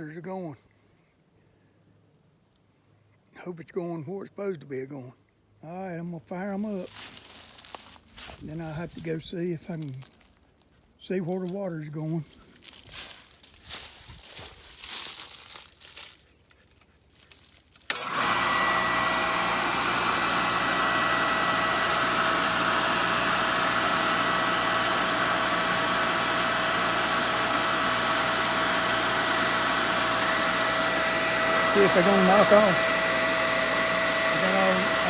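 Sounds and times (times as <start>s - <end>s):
faint clicks and rustles: 12.3s - 17.9s
pump whining: 17.3s - 35.0s.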